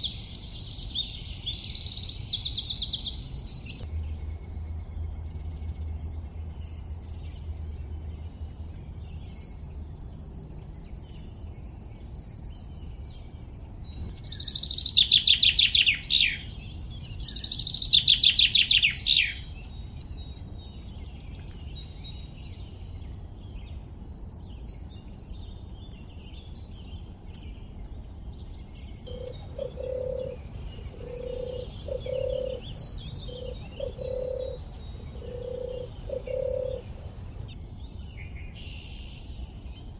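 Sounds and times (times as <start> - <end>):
small birds chirping: 0.0 - 39.9
low repeated bird notes: 29.0 - 37.6.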